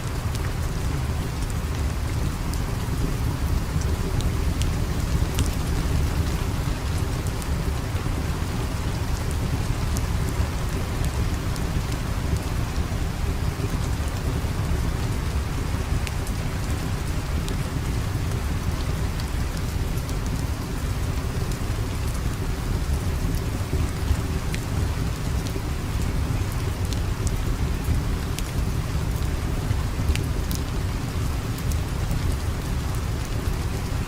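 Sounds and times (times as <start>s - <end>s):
steady rain: 0.0s - 34.0s
small crackles: 2.5s - 8.2s.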